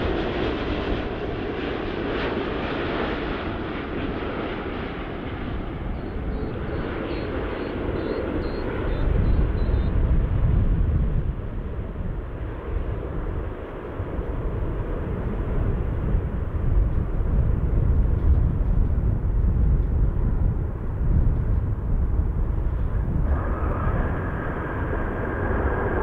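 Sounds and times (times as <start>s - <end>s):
jet engines rumbling: 0.0s - 26.0s
high engine whine: 22.2s - 26.0s.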